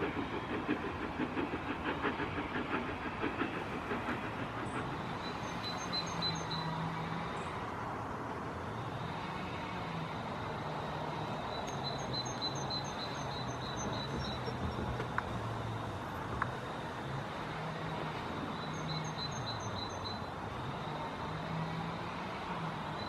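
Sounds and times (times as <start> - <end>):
steam locomotive hissing: 0.0 - 23.0
bird chirping: 5.2 - 6.7, 11.5 - 14.6.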